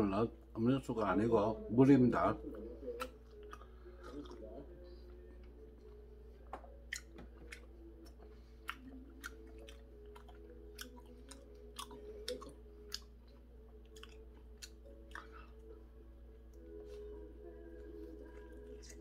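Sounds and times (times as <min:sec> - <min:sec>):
chewing with mouth clicks and smacks: 0:03.0 - 0:15.8, 0:17.6 - 0:19.0.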